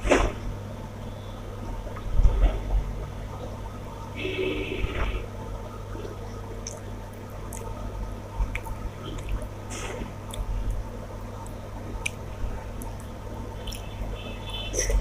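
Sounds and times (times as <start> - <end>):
wet chewing: 6.6 - 9.5, 11.4 - 14.1
lip smacks: 8.4 - 10.8, 11.4 - 14.0.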